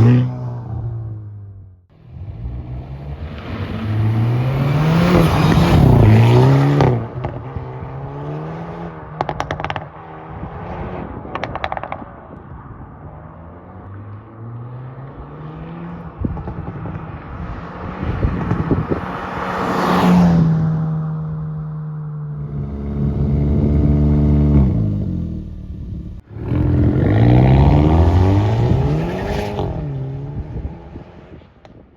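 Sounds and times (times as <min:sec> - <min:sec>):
car engine revving: 0:00.0 - 0:12.4, 0:22.0 - 0:31.7
exhaust crackles and pops: 0:09.2 - 0:10.0, 0:11.1 - 0:12.5.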